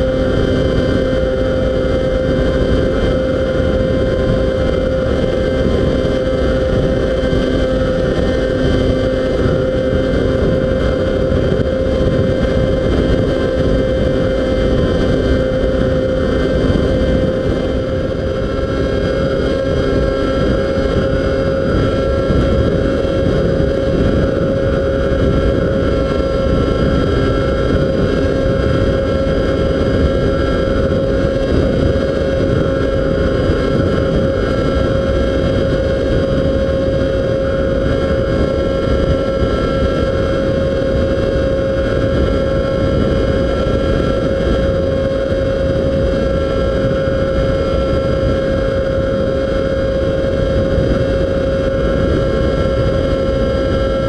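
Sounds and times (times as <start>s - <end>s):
model plane motor whining: 0.0s - 54.0s
wind buffeting microphone: 0.0s - 54.0s.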